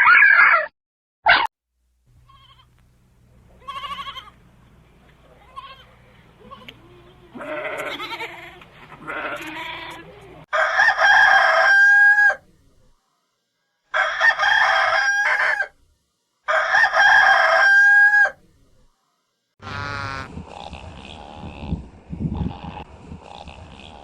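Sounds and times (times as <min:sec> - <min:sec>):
rooster crowing: 0:10.5 - 0:12.4, 0:13.9 - 0:15.8, 0:16.5 - 0:18.4.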